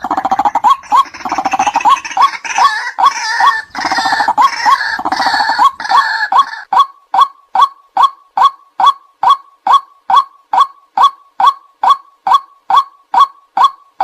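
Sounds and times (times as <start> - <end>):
croaking chatter: 0.0 - 6.9
waterhen calling: 0.0 - 14.0.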